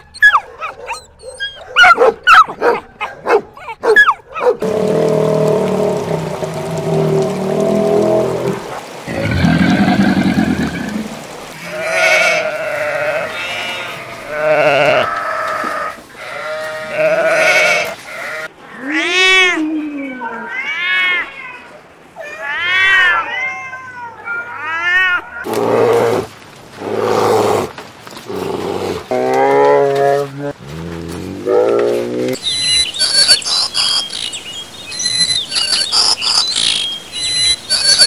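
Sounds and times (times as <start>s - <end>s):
wavering bleat-like cries: 11.6s - 19.4s.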